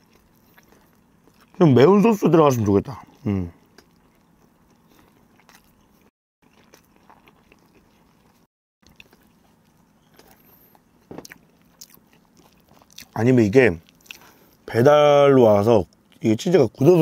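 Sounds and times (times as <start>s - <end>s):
faint chewing with mouth clicks: 0.0s - 1.6s, 2.8s - 14.7s, 15.8s - 16.3s.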